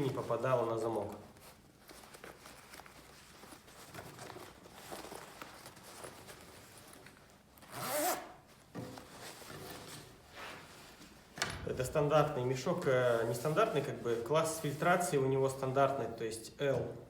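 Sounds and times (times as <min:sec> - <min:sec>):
fabric bag rustling: 0:00.0 - 0:15.2
zipper on fabric bag: 0:07.7 - 0:08.4.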